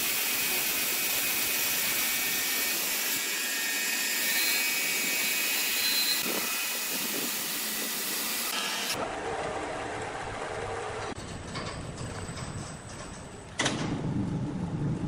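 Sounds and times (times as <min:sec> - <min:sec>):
low machine rumble: 0:13.7 - 0:15.0.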